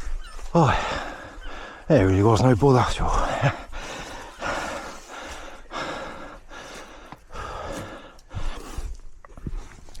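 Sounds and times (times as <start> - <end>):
person breathing hard: 0.6 - 1.9, 3.4 - 9.6.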